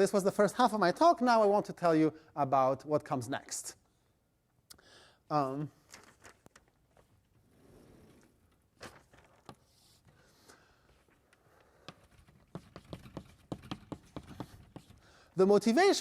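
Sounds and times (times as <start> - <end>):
faint taps and knocks: 11.8 - 15.0.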